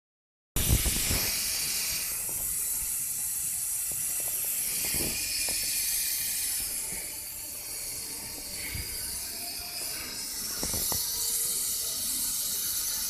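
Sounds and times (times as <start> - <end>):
high-pitched compressor hissing: 0.6 - 13.0.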